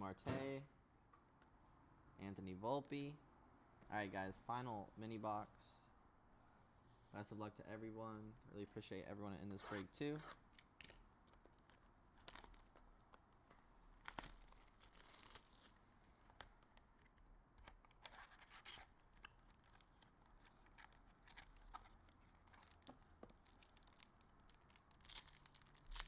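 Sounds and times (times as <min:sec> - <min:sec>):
card packs tearing and rustling: 0:10.8 - 0:13.1, 0:13.9 - 0:15.9, 0:18.0 - 0:26.0.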